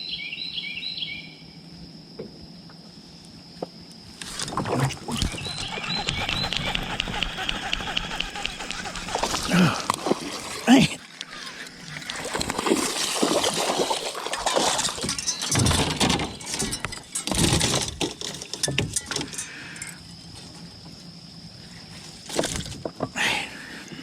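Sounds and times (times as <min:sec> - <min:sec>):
fishing gear knocking and rattling: 0:04.2 - 0:10.6, 0:14.2 - 0:19.9
water splashing: 0:04.3 - 0:16.7.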